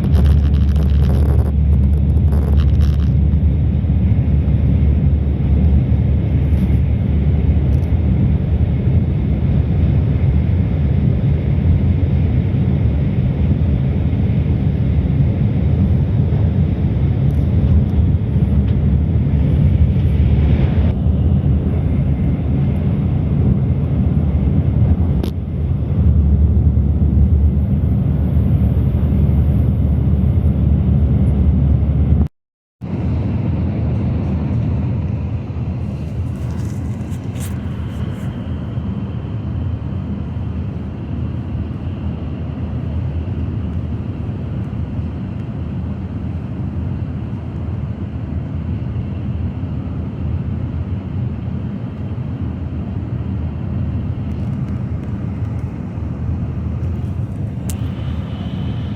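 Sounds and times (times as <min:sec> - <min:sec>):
train rumbling in motion: 0:00.0 - 0:10.2, 0:15.8 - 0:32.2, 0:32.9 - 0:44.3, 0:54.2 - 0:58.9.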